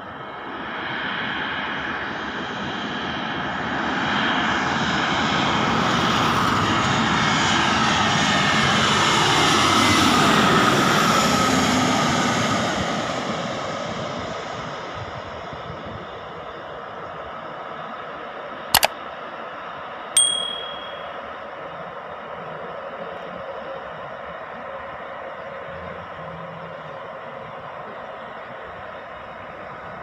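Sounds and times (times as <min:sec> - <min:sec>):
jet airliner flying past: 0:00.1 - 0:18.6.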